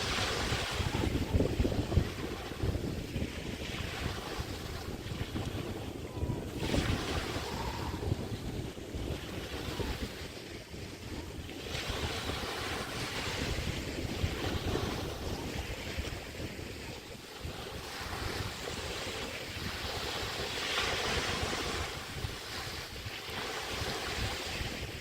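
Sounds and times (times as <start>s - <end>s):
waves washing onto a beach: 0.0s - 25.0s
wind rumbling on microphone: 0.0s - 25.0s.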